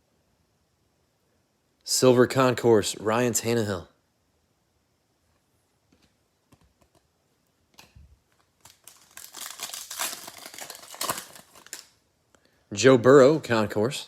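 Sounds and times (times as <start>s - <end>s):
wrappers crinkling and rustling: 7.8s - 12.0s.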